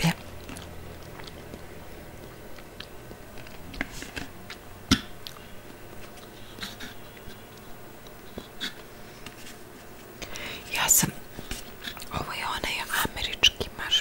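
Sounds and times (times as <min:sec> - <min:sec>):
chewing marshmallow: 0:00.0 - 0:09.4.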